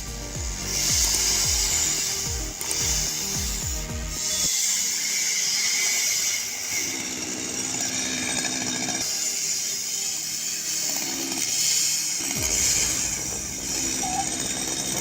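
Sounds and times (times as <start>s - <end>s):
chainsaw cutting: 0.0s - 15.0s.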